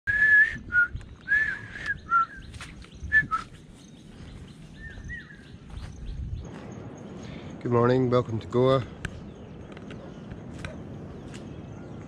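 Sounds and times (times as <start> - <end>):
bird whistling song: 0.1 - 7.2.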